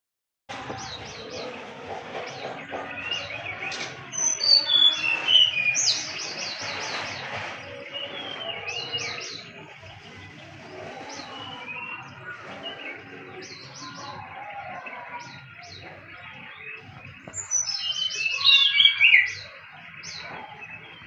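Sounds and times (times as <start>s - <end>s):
songbirds singing: 0.5s - 21.0s.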